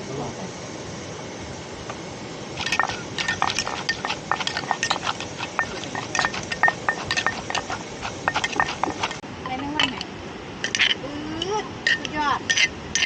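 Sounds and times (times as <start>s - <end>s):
kitchen utensils clinking: 2.6s - 10.0s, 10.6s - 13.0s.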